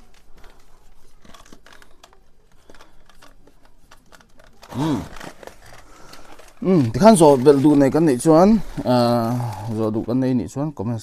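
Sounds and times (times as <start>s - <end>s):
faint clicks and rustling: 0.0s - 10.2s
person speaking: 4.6s - 5.4s, 6.6s - 11.0s.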